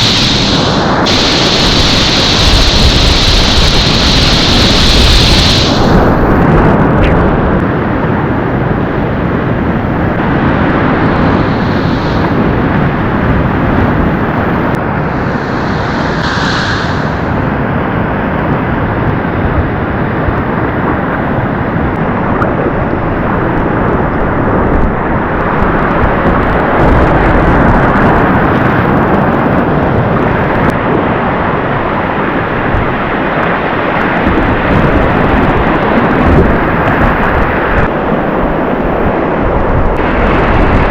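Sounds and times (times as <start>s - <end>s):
river whitewater rushing: 14.8s - 17.7s.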